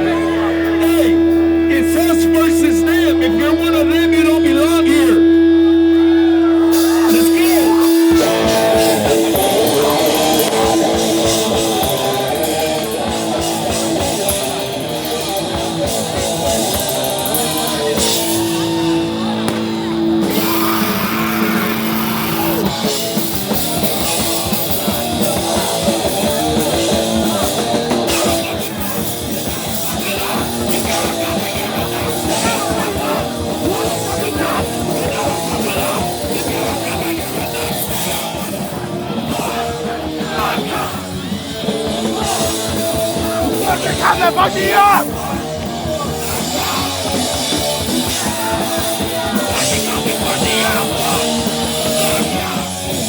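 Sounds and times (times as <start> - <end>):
distorted guitars: 0.0 - 53.0
fast drums: 6.7 - 53.0
shouted vocals: 16.0 - 22.9, 24.8 - 53.0.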